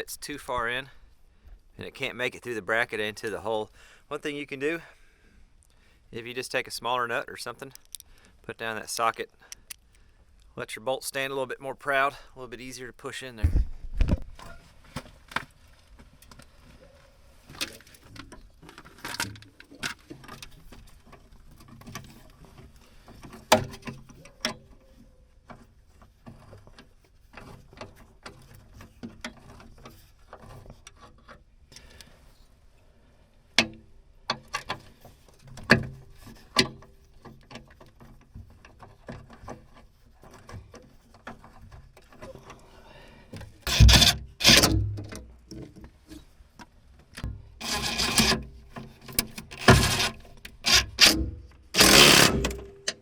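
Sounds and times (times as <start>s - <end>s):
hand tools and bolts clicking: 7.6s - 8.3s, 9.0s - 9.9s, 43.7s - 45.2s, 47.6s - 53.0s.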